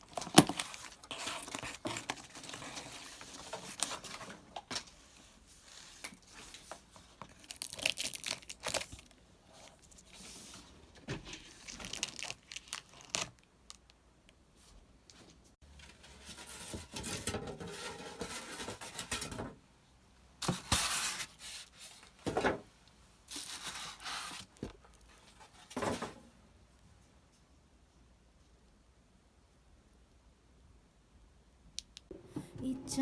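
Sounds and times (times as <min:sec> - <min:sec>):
packaging rustling: 0:00.0 - 0:05.0, 0:06.0 - 0:10.2, 0:11.4 - 0:13.8.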